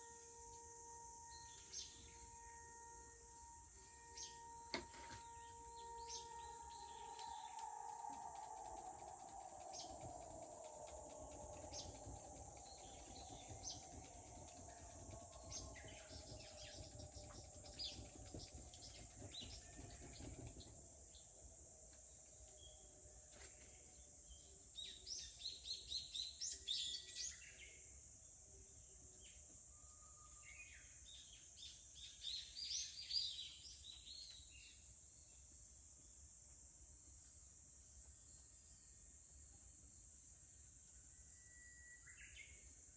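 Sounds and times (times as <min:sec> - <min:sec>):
high insect drone: 0:00.0 - 0:33.5
rapid bird song: 0:05.2 - 0:21.6, 0:30.3 - 0:35.4
wood fire crackling: 0:06.5 - 0:21.1.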